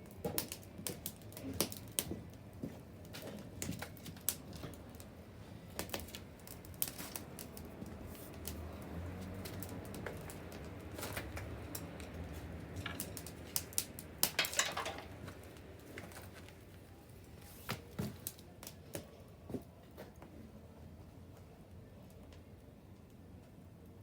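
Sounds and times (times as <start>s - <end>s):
bonfire crackling and popping: 0.0s - 19.2s.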